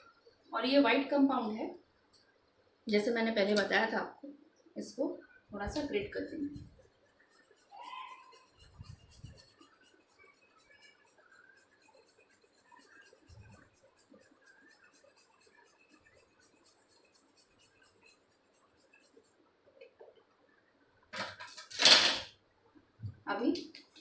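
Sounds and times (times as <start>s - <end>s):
chocolate scratching on grater: 5.6s - 19.4s.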